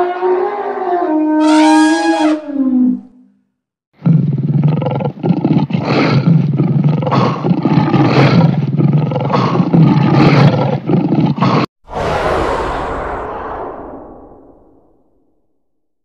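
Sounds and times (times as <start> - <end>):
lion roaring: 4.0 - 11.7.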